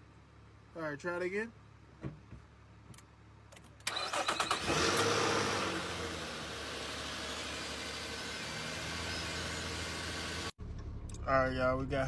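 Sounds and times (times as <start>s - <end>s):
starter motor cranking: 3.8s - 5.9s
car engine revving and idling: 4.2s - 12.0s.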